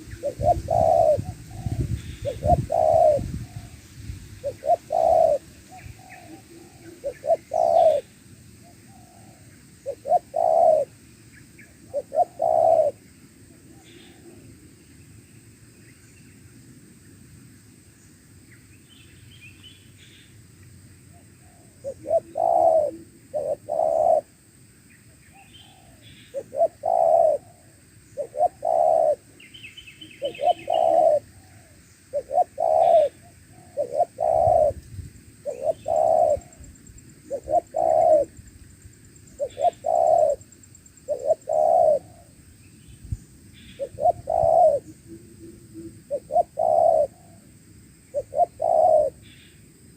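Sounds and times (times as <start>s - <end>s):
dove cooing: 0.0s - 3.8s, 4.4s - 11.0s, 11.8s - 14.6s, 21.1s - 24.3s, 25.3s - 29.5s, 30.1s - 34.8s, 35.4s - 38.4s, 39.4s - 40.5s, 41.1s - 42.3s, 43.8s - 47.5s, 48.1s - 49.3s
faint high bird chirps: 28.1s - 34.8s.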